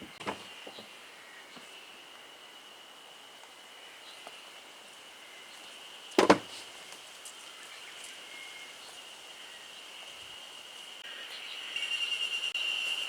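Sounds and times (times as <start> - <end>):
insects trilling: 0.0 - 13.0
sharp loud knock: 6.2 - 6.5.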